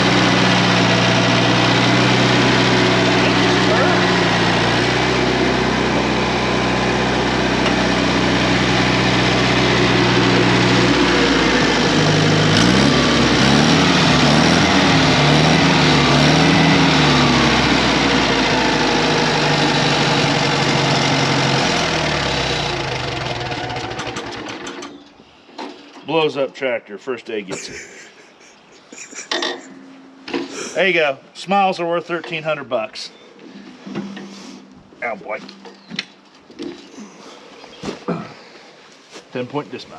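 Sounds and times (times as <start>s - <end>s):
tractor engine running: 0.0s - 25.1s.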